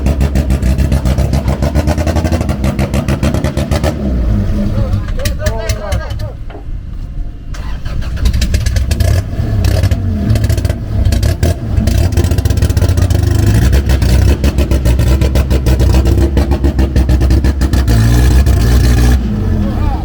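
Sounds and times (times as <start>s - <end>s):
car engine revving: 0.0s - 5.1s, 7.6s - 20.0s
exhaust crackle: 7.6s - 20.0s.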